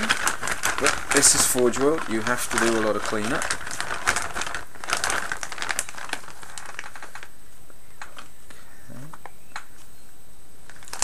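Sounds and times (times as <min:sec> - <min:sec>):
plastic bag rustling: 0:00.0 - 0:09.2, 0:10.6 - 0:11.0
murmured voice: 0:08.6 - 0:09.2.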